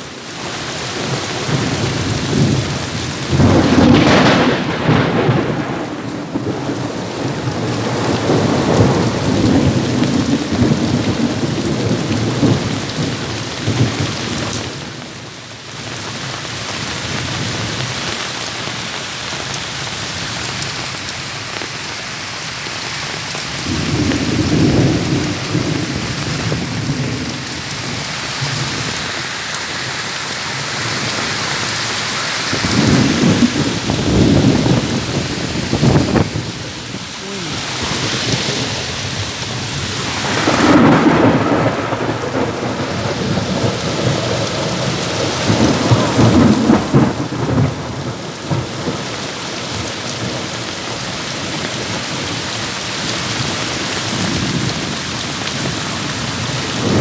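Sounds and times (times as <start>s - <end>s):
heavy rain falling: 0.0s - 57.0s
rolling thunder: 1.4s - 15.0s, 23.6s - 29.0s, 32.4s - 49.2s.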